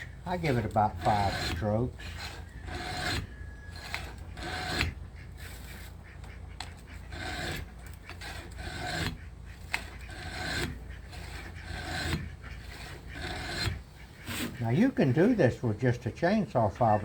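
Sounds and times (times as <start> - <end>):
file rasping on saw chain: 0.0 - 15.2.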